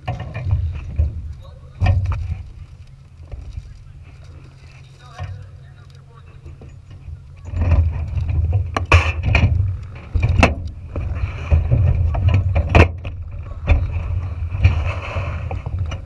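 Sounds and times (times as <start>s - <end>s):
dragster engine rumbling: 0.0s - 16.0s
sharp knocks and cracks: 7.4s - 14.8s.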